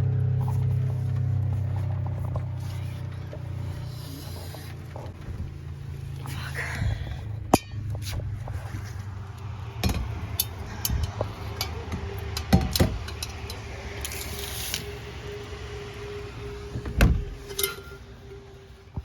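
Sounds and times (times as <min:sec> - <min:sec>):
low rumble: 0:00.0 - 0:19.0
objects knocking and clattering: 0:07.4 - 0:13.8.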